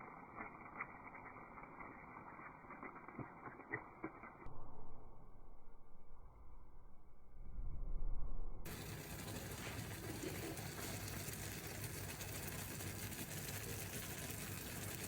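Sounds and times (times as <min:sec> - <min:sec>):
low hum: 0:00.0 - 0:13.3
steady hiss: 0:08.7 - 0:15.0.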